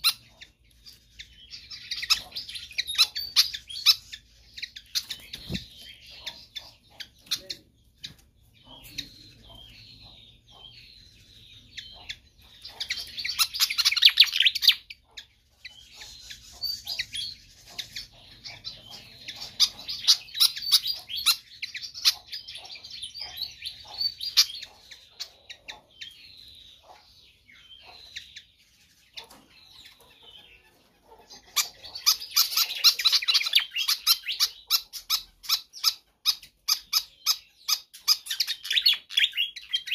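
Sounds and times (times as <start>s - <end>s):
bird chirping and chattering: 0.0s - 39.9s.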